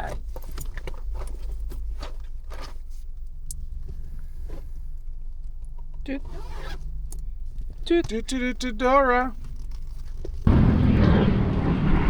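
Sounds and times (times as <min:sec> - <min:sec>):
handling clicks and rustles: 0:00.0 - 0:10.5
steady low rumble: 0:09.3 - 0:12.0.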